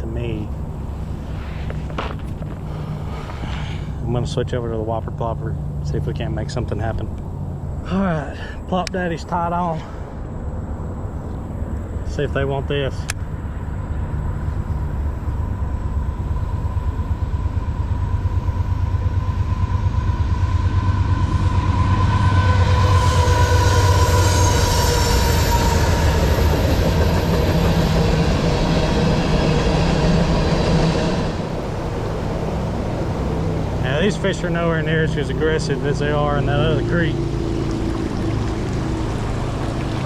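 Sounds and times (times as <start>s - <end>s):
train rumbling past: 0.0s - 40.0s
steel wheels squealing on rails: 15.6s - 32.1s.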